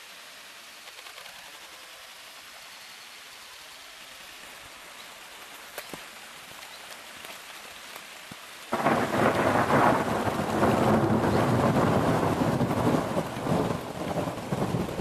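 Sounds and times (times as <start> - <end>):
steady rain hissing: 0.0 - 15.0
thunder clap and rumble: 8.7 - 15.0.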